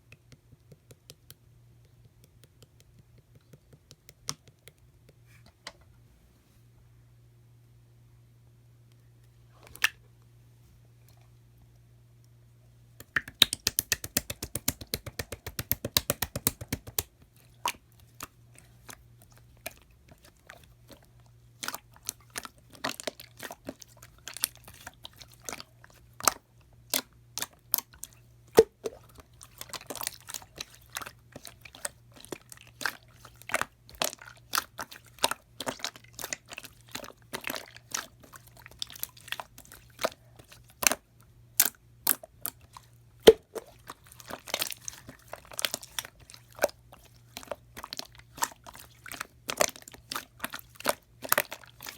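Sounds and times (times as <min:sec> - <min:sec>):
slime squished by hand: 0:13.0 - 0:21.0, 0:21.6 - 0:41.0, 0:41.6 - 0:51.9.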